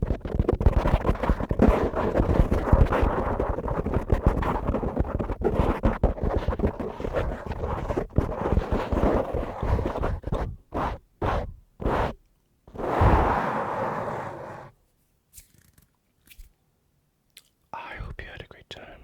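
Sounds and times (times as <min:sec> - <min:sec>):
brush scratching microphone: 0:00.0 - 0:14.7.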